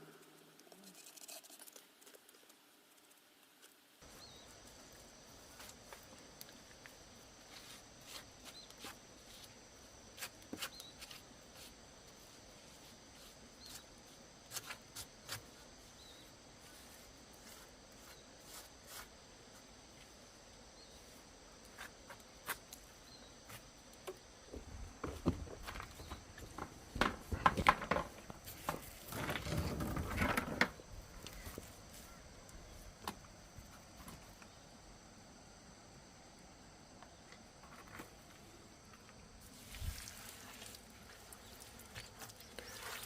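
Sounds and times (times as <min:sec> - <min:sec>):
low hiss: 0:38.2 - 0:43.0.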